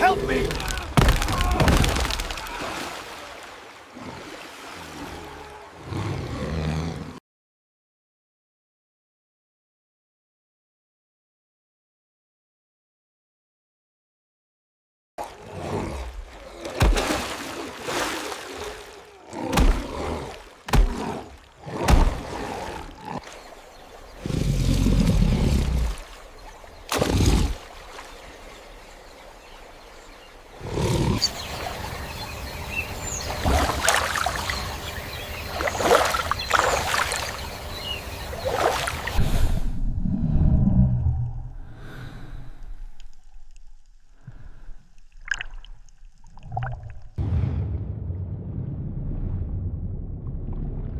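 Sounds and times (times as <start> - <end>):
animal roars and growls: 3.9 - 7.2, 15.2 - 17.0, 18.5 - 23.3, 24.2 - 26.1, 30.5 - 31.5
rushes of noise: 38.9 - 43.0
deep rumble: 39.2 - 44.0, 46.6 - 50.9.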